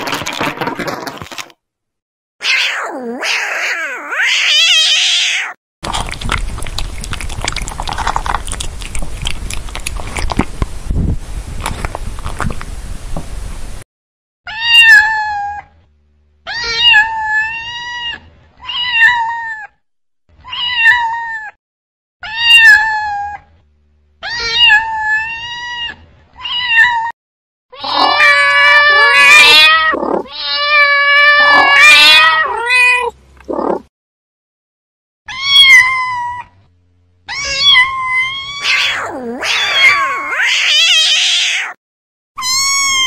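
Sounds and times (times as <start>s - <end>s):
cat meowing: 2.4s - 5.6s, 14.5s - 15.7s, 16.5s - 19.8s, 20.4s - 21.6s, 22.2s - 23.4s, 24.2s - 27.1s, 27.8s - 33.8s, 35.3s - 36.6s, 37.3s - 41.8s, 42.4s - 43.0s
loud cat cries: 2.4s - 5.6s, 14.5s - 15.7s, 16.5s - 19.8s, 20.4s - 21.6s, 22.2s - 23.4s, 24.2s - 27.1s, 27.7s - 33.8s, 35.3s - 36.6s, 37.2s - 41.8s, 42.4s - 43.0s
cat chewing food: 5.8s - 10.8s, 11.6s - 12.7s.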